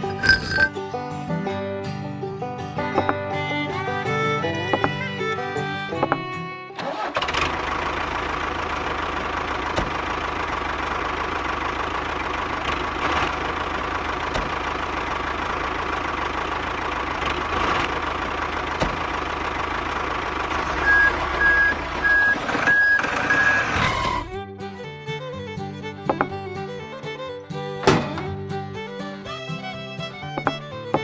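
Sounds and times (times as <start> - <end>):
truck engine idling: 6.8 - 31.0
reversing alarm beeps: 20.8 - 23.7.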